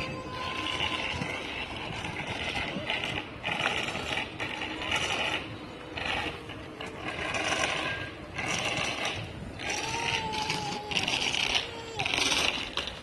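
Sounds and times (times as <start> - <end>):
bicycle rattling and scraping: 0.0 - 13.0
ratchet-like clicking: 0.3 - 13.0.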